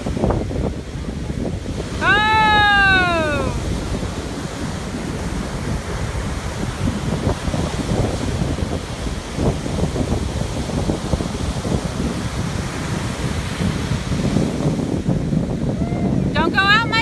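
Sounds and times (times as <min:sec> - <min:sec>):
surf washing in: 0:00.0 - 0:17.0
wind buffeting microphone: 0:00.0 - 0:17.0
high-pitched voice calling out: 0:02.0 - 0:03.6.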